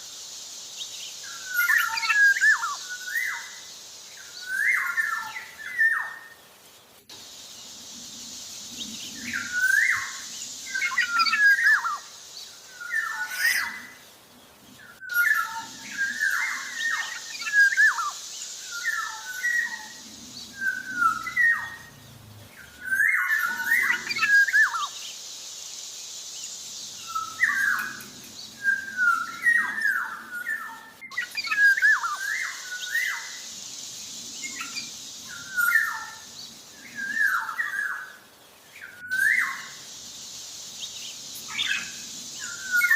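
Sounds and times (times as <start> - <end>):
steady high hiss: 0.0 - 42.9
bird singing fluty whistles: 1.2 - 3.6, 4.2 - 6.3, 9.1 - 12.1, 14.8 - 21.9, 22.8 - 25.0, 27.0 - 33.5, 34.4 - 38.2, 38.8 - 40.0, 40.8 - 42.9.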